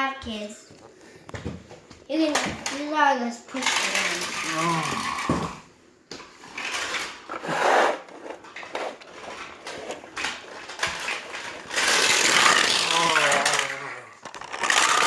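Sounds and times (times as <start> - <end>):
toy cars clicking when handled: 3.5 - 5.5, 8.6 - 15.0
child's vroom noise: 3.9 - 5.6, 12.6 - 14.2.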